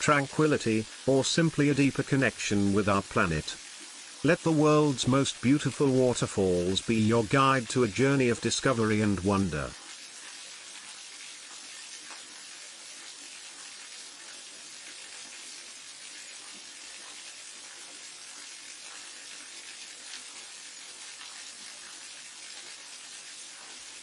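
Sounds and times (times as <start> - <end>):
waterfall hissing: 0.0 - 9.8.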